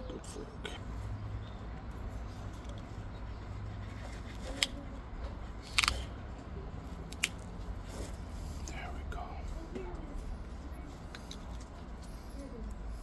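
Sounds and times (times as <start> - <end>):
glassy stone flaking clicks: 5.6 - 6.1, 7.1 - 7.4.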